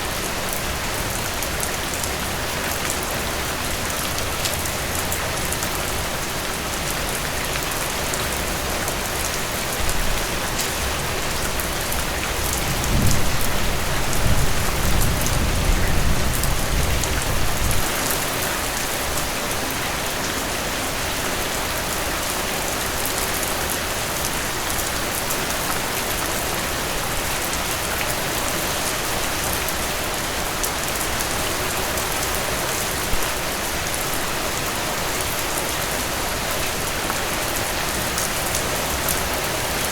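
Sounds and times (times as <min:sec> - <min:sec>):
heavy rain falling: 0:00.0 - 0:39.9
thunder rumbling: 0:12.6 - 0:17.9.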